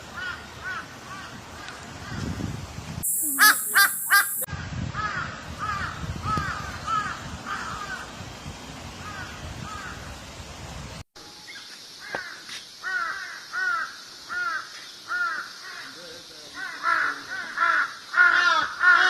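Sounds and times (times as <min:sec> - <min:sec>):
crows cawing: 0:03.4 - 0:04.4, 0:12.0 - 0:16.0, 0:16.6 - 0:19.0.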